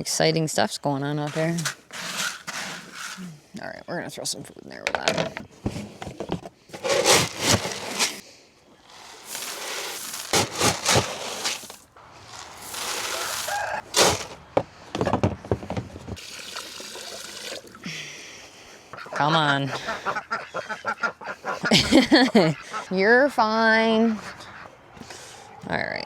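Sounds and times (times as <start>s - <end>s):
knocks and scrapes: 1.2s - 3.4s, 4.9s - 8.2s, 8.8s - 16.2s
dry feed pouring into feeder: 1.3s - 3.3s, 6.8s - 8.2s, 8.8s - 14.4s.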